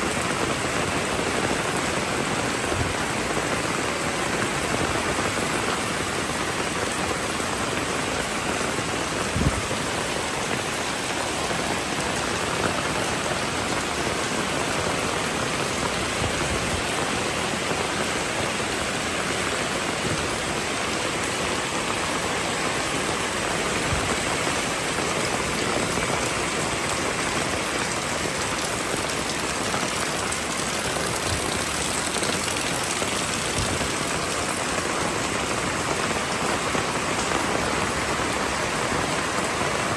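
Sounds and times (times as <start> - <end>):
rain falling on street: 0.0 - 39.9.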